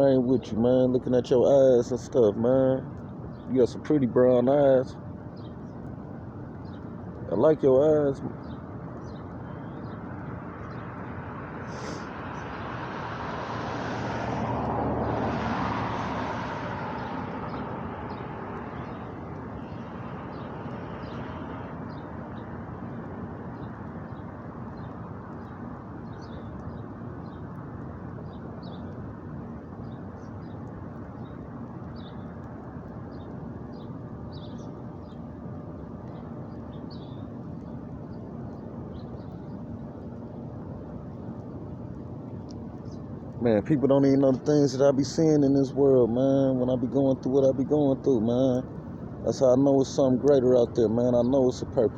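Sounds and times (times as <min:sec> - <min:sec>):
outdoor background hiss: 0:00.0 - 0:51.9
car passing on road: 0:09.8 - 0:36.9.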